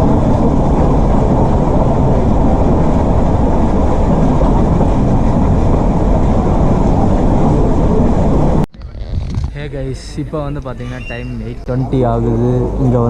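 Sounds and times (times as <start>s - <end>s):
train wheels rumbling on rails: 0.0s - 8.7s.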